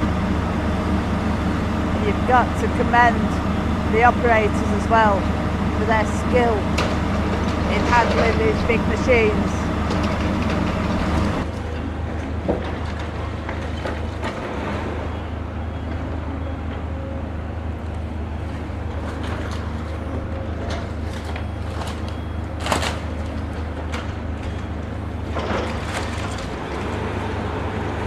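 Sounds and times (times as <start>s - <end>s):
excavator diesel engines running: 0.0s - 28.0s.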